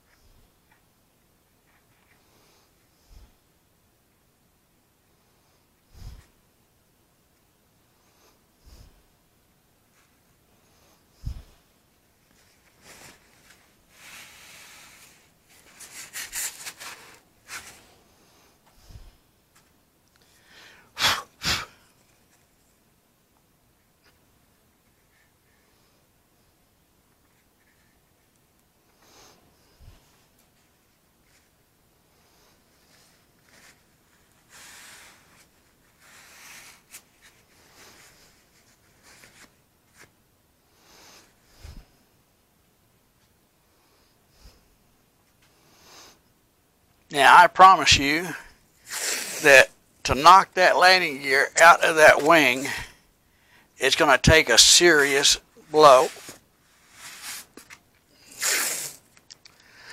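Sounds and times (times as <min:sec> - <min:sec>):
scraping and rubbing on foam: 0:12.4 - 0:17.9, 0:32.8 - 0:40.1, 0:48.9 - 0:49.6, 0:55.0 - 0:59.1.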